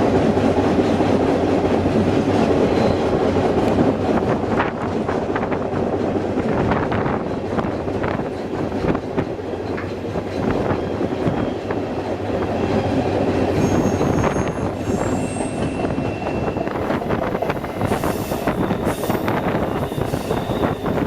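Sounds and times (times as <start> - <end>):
railway car rumbling: 0.0 - 21.0
high-pitched wheel squeal: 13.5 - 17.0, 17.6 - 21.0.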